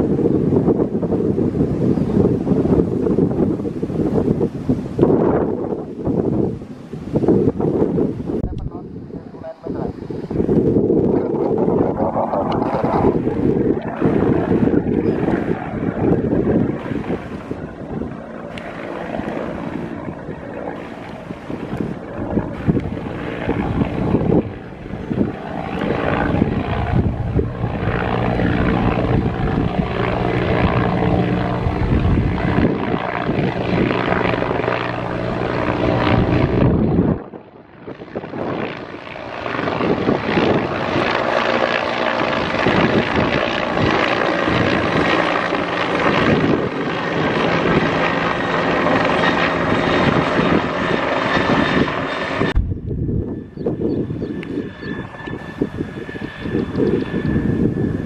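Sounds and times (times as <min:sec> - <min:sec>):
airliner engines running: 0:00.0 - 0:58.0.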